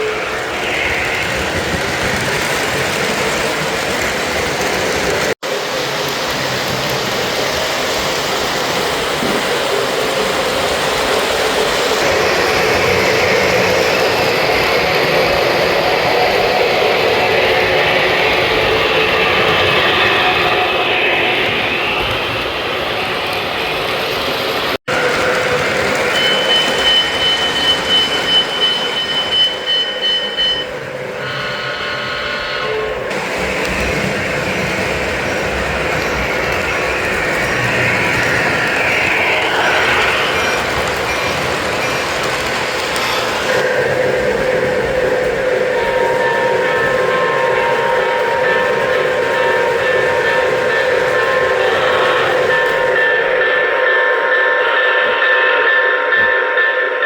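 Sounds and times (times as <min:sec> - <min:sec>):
model train rumbling on track: 0:00.0 - 0:57.0
chord of steady tones: 0:25.0 - 0:57.0
high steady tone: 0:26.2 - 0:33.8.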